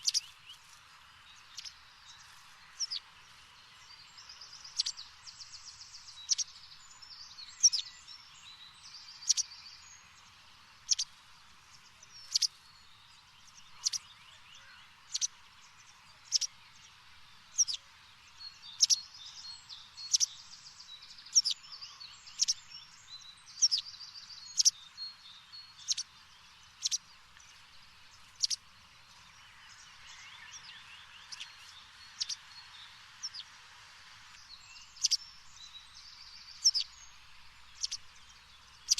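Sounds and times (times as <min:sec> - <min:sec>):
bird chirping: 0:00.0 - 0:11.1, 0:11.9 - 0:33.5, 0:34.3 - 0:38.9
faint steady hiss: 0:00.0 - 0:38.9.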